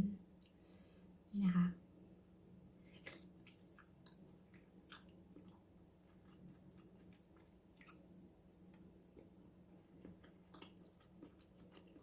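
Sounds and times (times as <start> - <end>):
low steady hum: 0.0 - 12.0
wet chewing of shellfish: 2.8 - 12.0.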